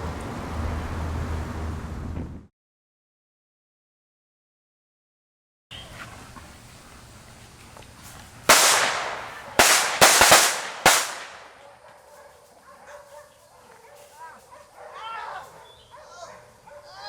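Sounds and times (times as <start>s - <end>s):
loud sharp bangs: 8.5s - 11.6s.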